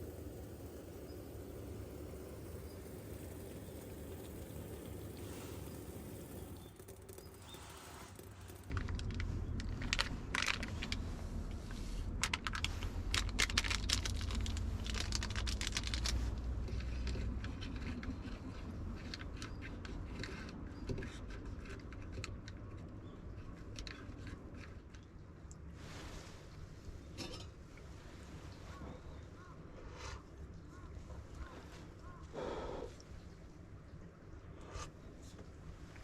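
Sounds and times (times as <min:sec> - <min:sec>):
clicks and rustles of handling: 0:06.8 - 0:25.7.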